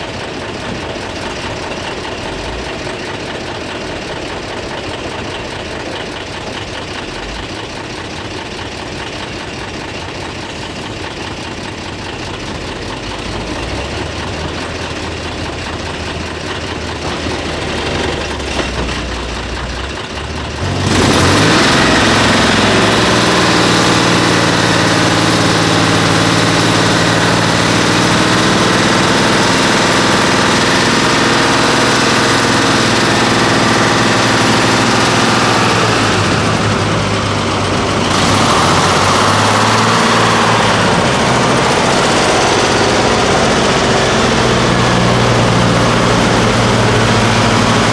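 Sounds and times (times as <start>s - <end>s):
diesel truck engine revving: 0.0s - 47.9s.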